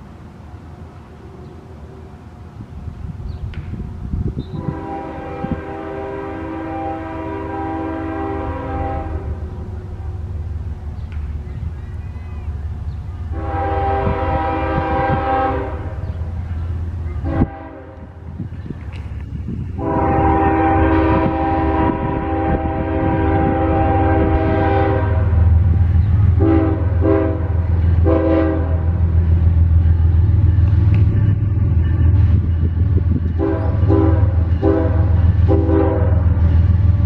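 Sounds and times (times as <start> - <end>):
locomotive low rumble: 0.0 - 37.0
train horn chord blasts: 4.4 - 10.2, 13.2 - 16.3, 17.2 - 18.2, 19.8 - 37.0.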